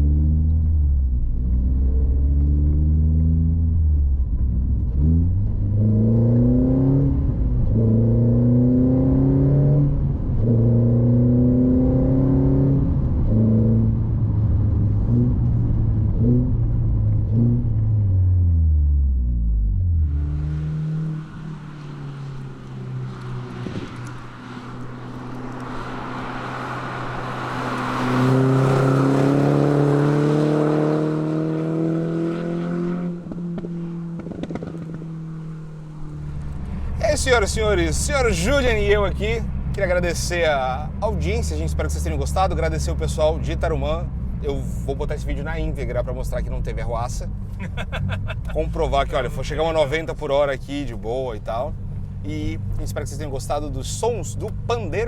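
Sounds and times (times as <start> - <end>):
car engine accelerating: 0.0 - 55.0
wind and road hiss: 21.4 - 30.0.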